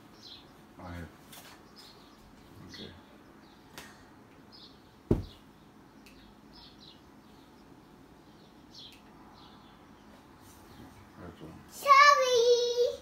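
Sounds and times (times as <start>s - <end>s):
sharp thump: 5.1s - 5.4s.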